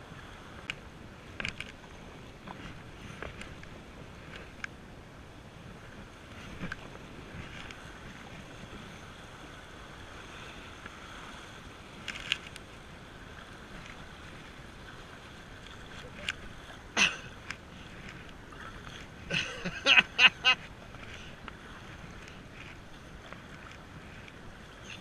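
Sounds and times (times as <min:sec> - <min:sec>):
wind on microphone: 0:00.0 - 0:25.0
river water rushing: 0:09.0 - 0:25.0.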